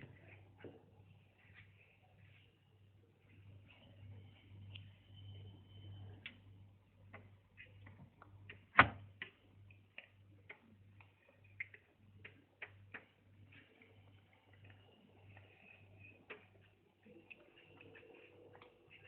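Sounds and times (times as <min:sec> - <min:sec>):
faint pulsing low hum: 0:00.0 - 0:19.0
light clicks and taps: 0:07.1 - 0:19.0.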